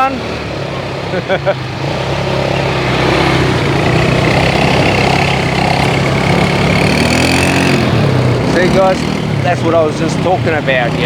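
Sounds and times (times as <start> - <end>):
road and wind noise: 0.0 - 11.0
vehicle engine running: 0.0 - 11.0.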